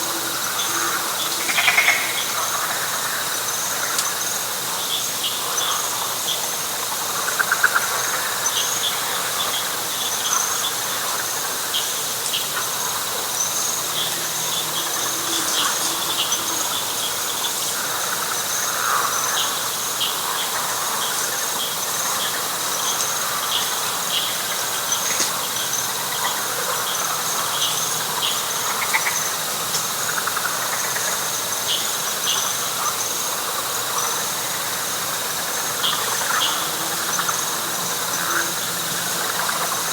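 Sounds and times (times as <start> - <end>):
loud pulsed frog call: 0.0 - 4.0
frog calls: 0.0 - 39.9
high-pitched insect trill: 0.0 - 39.9.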